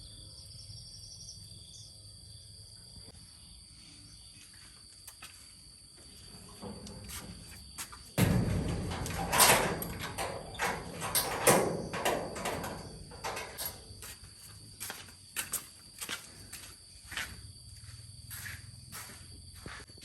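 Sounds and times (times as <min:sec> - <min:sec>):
high insect trill: 0:00.0 - 0:20.0
clattering and knocking: 0:06.5 - 0:14.1.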